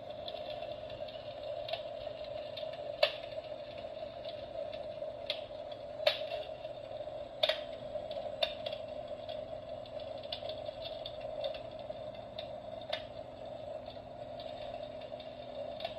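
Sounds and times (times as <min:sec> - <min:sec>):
electric fireplace humming: 0:00.0 - 0:15.9
clicks and ticks: 0:00.2 - 0:06.7, 0:07.4 - 0:15.9.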